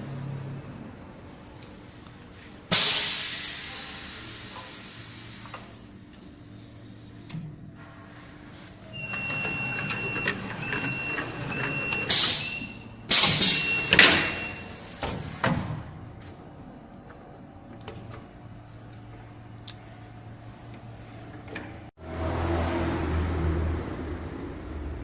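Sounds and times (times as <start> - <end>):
machine high whine: 8.9 - 14.8.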